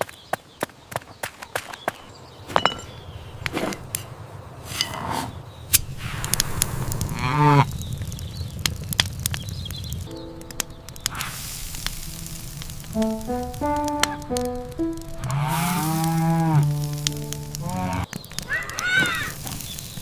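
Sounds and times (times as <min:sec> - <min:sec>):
cow mooing: 0:15.3 - 0:18.1.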